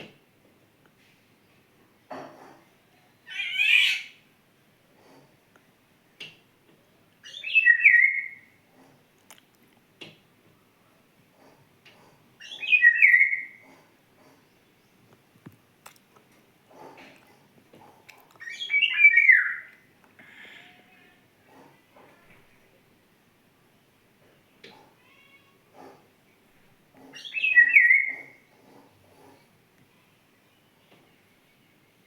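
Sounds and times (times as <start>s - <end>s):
songbird calling: 7.2s - 8.6s, 12.4s - 13.7s, 18.4s - 19.8s, 27.1s - 28.5s.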